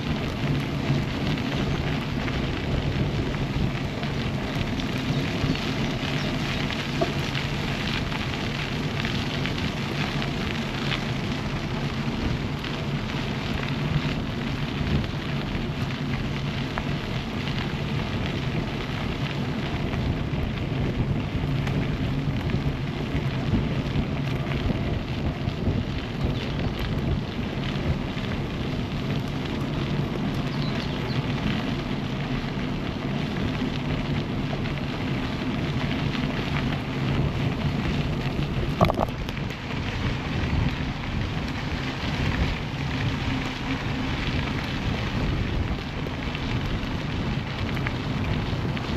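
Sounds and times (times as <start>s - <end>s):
bicycle tyres rolling on path: 0.0s - 48.9s
constant fine crackle: 0.0s - 48.9s
wind on microphone: 19.6s - 28.1s, 37.1s - 48.9s.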